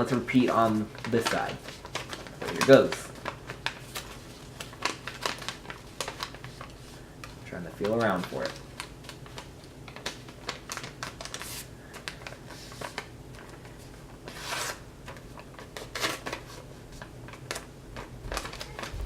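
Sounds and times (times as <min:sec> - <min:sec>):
paper crinkling and rustling: 0:00.0 - 0:19.0.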